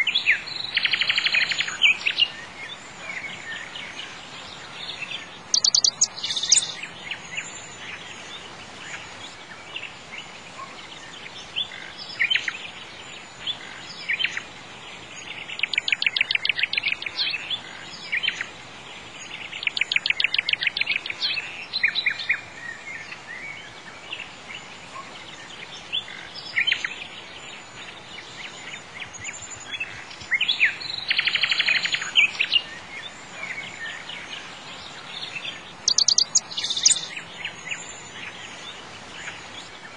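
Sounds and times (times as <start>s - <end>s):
birds chirping: 0.0s - 39.9s
faint hiss: 0.0s - 39.9s.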